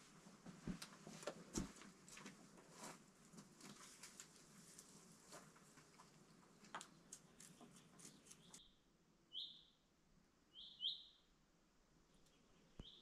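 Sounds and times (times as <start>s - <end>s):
small bird chirping: 6.6s - 9.8s, 10.5s - 11.3s, 12.1s - 13.0s.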